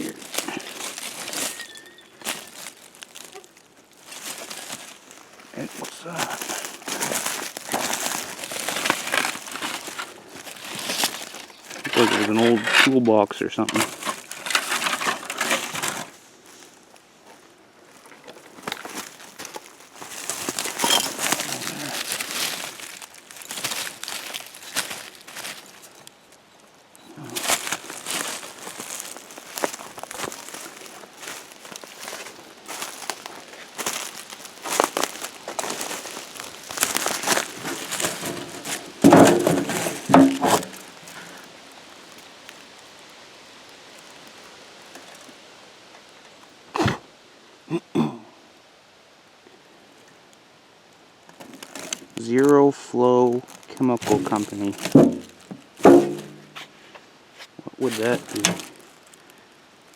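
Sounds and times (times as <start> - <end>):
dry debris rustling and crunching: 0.0 - 46.7, 49.9 - 59.9
loud thunks: 38.1 - 40.8, 54.8 - 56.6.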